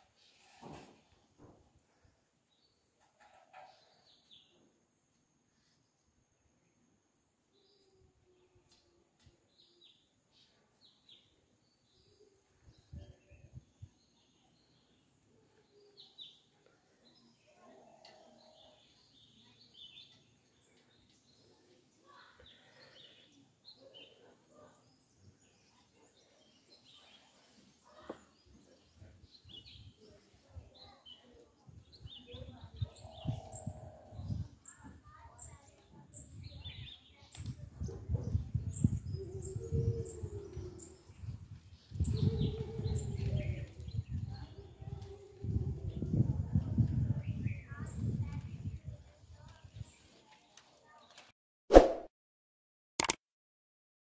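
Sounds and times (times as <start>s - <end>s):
faint birds chirping: 0.0s - 46.1s
sharp click: 53.0s - 53.2s.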